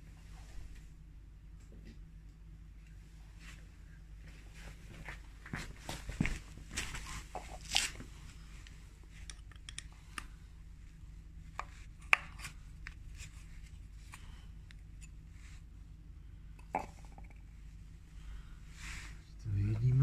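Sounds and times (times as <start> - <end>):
low steady hum: 0.0 - 20.0
screwdriver clicking and scraping: 9.2 - 9.9.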